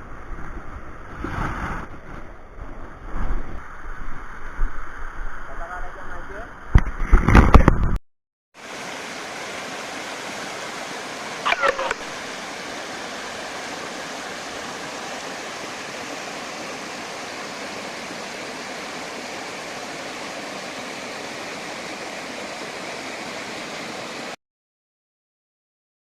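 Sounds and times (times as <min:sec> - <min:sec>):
stream water flowing: 0:08.6 - 0:24.4.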